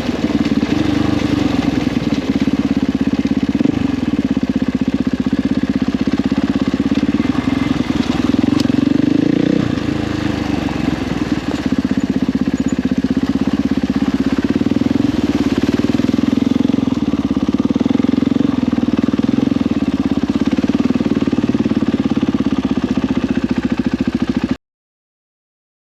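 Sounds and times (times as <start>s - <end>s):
motorcycle engine running: 0.0s - 24.6s.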